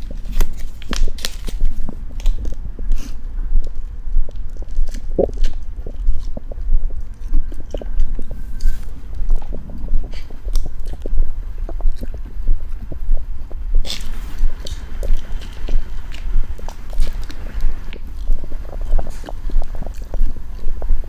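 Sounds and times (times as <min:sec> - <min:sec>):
chewing soft food: 0:00.0 - 0:21.0
short rustling hiss: 0:13.9 - 0:20.5.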